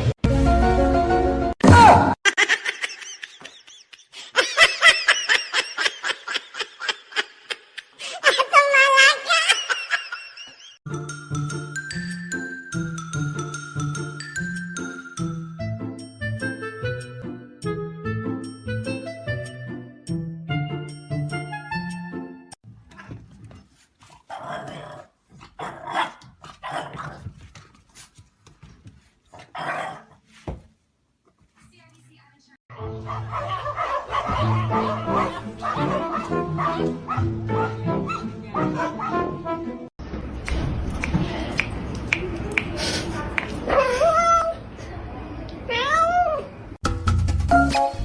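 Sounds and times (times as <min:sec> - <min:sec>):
music: 0:00.0 - 0:01.6, 0:10.9 - 0:22.6, 0:32.7 - 0:39.9, 0:46.8 - 0:48.0.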